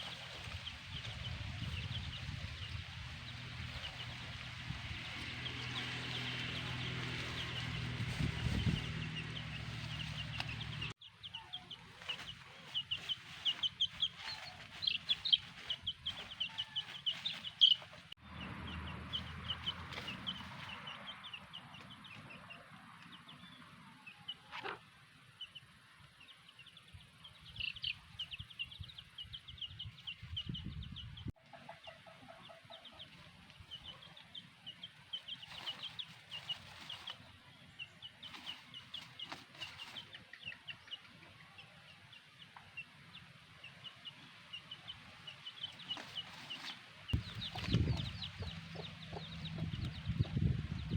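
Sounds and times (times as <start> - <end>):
chicks peeping: 0.0 - 50.9
hen clucking: 7.4 - 22.7, 44.7 - 50.9.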